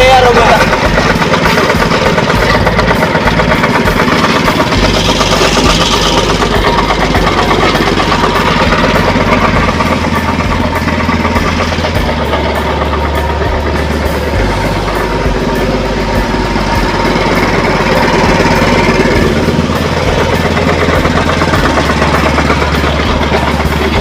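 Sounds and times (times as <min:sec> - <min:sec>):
petrol engine running: 0:00.0 - 0:24.0.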